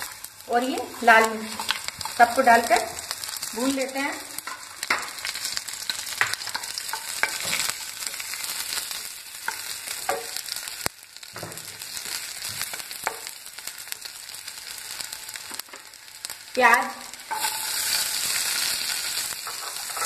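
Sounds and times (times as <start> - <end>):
spatula scraping a pan: 0.0 - 3.5, 4.4 - 10.6, 17.2 - 20.0
spices sizzling in hot oil: 0.0 - 20.0.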